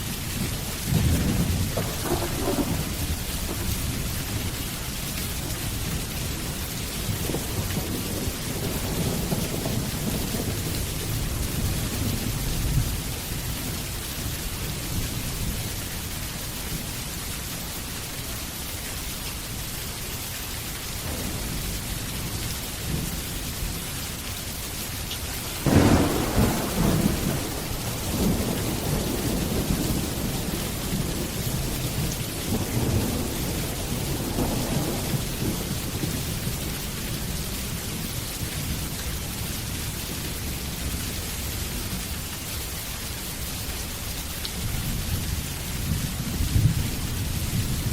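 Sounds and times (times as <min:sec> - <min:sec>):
thunder rumbling: 0:00.0 - 0:13.3, 0:21.0 - 0:23.8, 0:25.4 - 0:37.8
steady rain: 0:00.0 - 0:47.9
loud thunderclap: 0:00.8 - 0:04.6, 0:07.0 - 0:13.0, 0:21.0 - 0:23.8, 0:25.5 - 0:36.6.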